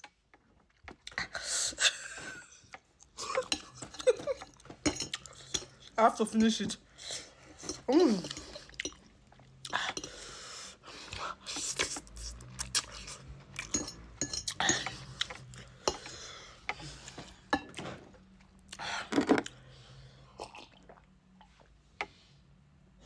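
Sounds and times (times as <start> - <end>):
utensils clinking against bowl: 3.2 - 6.8, 7.6 - 9.1, 11.7 - 16.2
chewing: 7.6 - 10.3.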